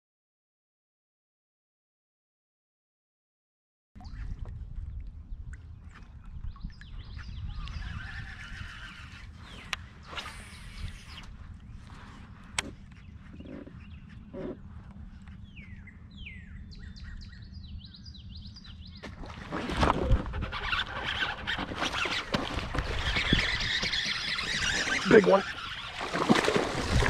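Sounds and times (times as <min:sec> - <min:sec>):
water churning: 0:19.0 - 0:27.0.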